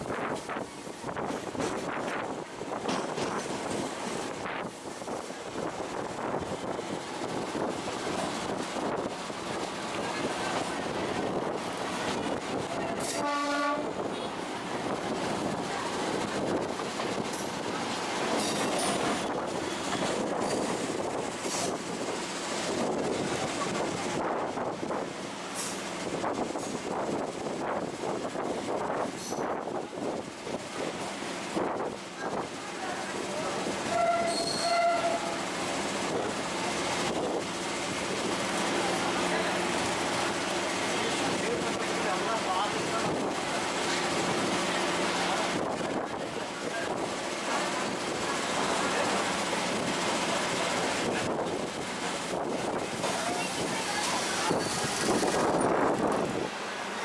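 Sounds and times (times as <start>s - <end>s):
train wheels rumbling on rail: 0.0s - 57.0s
brief shrill tone: 33.9s - 35.4s.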